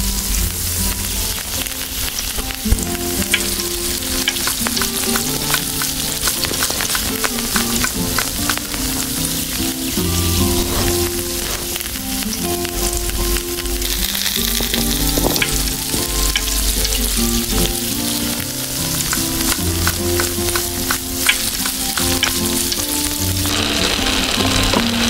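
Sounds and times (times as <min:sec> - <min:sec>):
background music: 0:00.0 - 0:25.0
food sizzling in a pan: 0:00.0 - 0:25.0
utensil clicking: 0:13.8 - 0:23.1.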